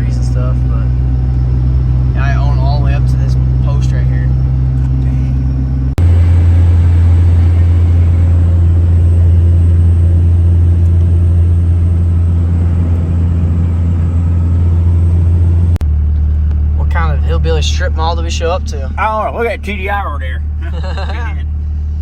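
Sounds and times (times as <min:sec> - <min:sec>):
vehicle engine droning: 0:00.0 - 0:22.0.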